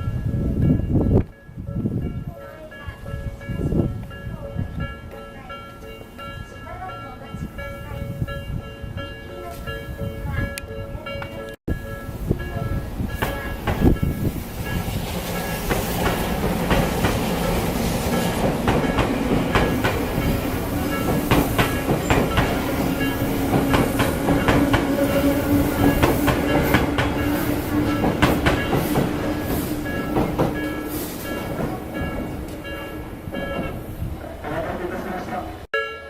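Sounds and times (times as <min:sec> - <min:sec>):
crossing warning bell: 0:00.0 - 0:34.3, 0:34.9 - 0:36.0
train hum: 0:00.0 - 0:35.7
train wheels clacking: 0:12.4 - 0:35.2.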